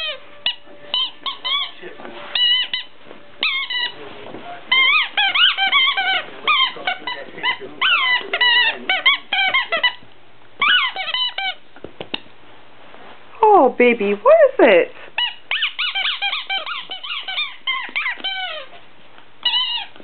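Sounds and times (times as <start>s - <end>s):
squeaky dog toy squeaking: 0.0s - 4.0s, 4.7s - 10.0s, 10.6s - 12.3s, 15.2s - 18.8s, 19.4s - 20.0s.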